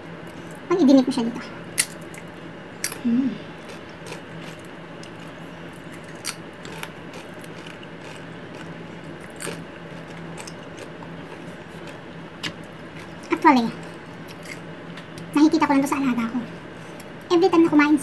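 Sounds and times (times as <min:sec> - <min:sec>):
faint low hum: 0:00.0 - 0:18.0
chip crunching: 0:01.7 - 0:15.3
person humming mm: 0:03.0 - 0:03.6.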